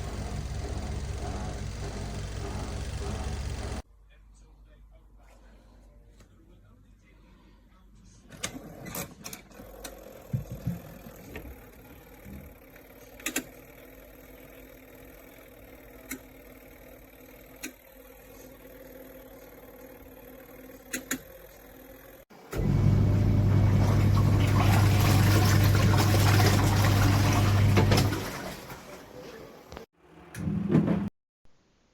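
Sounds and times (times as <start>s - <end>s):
washing machine motor humming: 0.0s - 3.8s, 9.6s - 29.8s.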